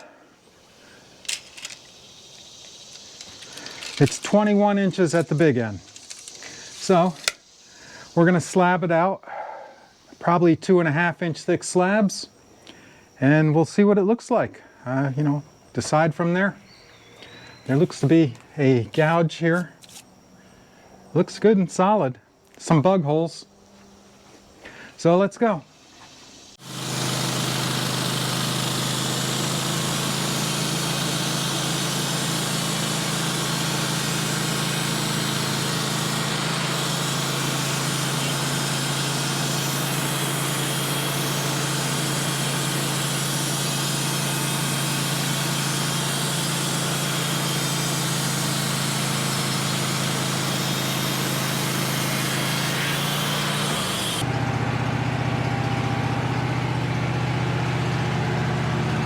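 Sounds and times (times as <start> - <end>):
sawmill engine running: 0.0 - 8.8, 26.6 - 59.0.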